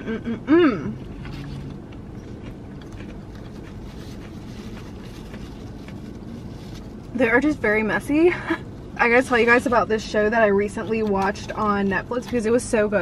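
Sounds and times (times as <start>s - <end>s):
low hum inside car: 0.0s - 13.0s
soft chewing: 1.0s - 7.1s
paper napkin rustling: 3.4s - 7.0s.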